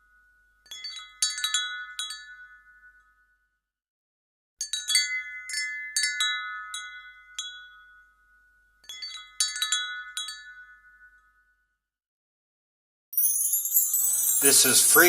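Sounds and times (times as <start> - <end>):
wind chime ringing: 0.1 - 3.3, 4.6 - 11.6, 13.2 - 15.0.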